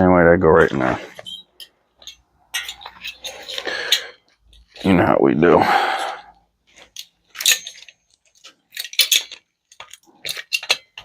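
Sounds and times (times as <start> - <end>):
metallic clinks and taps: 1.2 - 4.6, 6.8 - 11.0.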